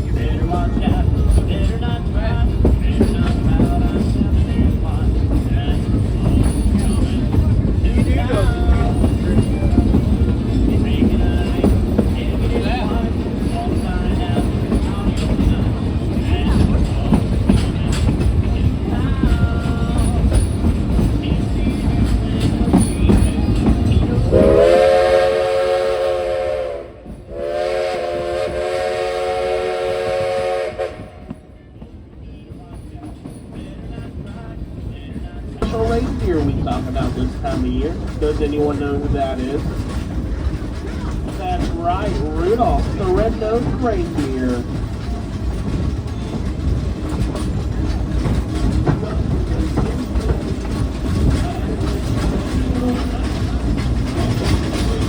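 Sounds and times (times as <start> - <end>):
wheels clacking over rail joints: 0.0 - 25.2, 32.2 - 55.0
moving train rumble: 0.0 - 55.0
steam locomotive chime whistle: 24.2 - 31.5.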